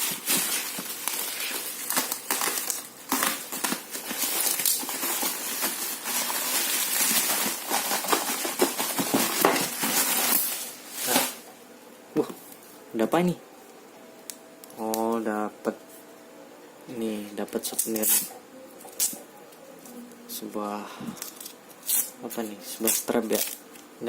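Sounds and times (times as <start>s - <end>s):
packaging crinkling and tearing: 0.0s - 11.4s.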